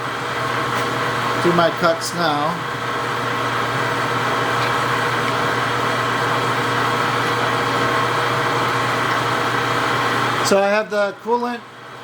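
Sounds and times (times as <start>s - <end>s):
metal lathe drilling steel: 1.2s - 10.5s.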